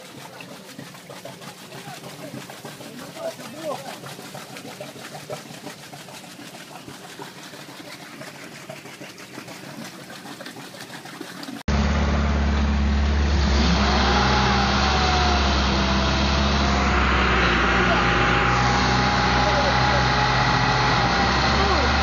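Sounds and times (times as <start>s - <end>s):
water spray rushing: 0.0s - 22.0s
car engine running: 11.7s - 22.0s
wavering whine: 11.8s - 22.0s.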